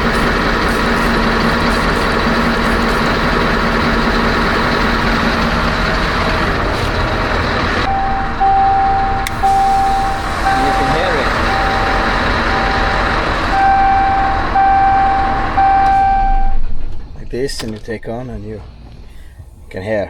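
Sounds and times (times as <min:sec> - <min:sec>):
truck diesel engine idling: 0:00.0 - 0:20.0
high electronic beep: 0:07.9 - 0:16.6.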